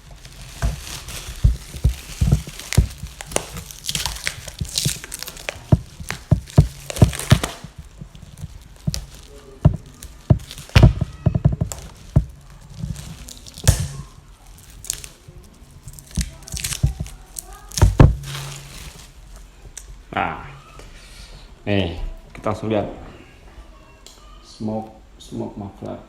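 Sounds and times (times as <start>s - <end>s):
packaging rustling and tearing: 0.0s - 19.5s.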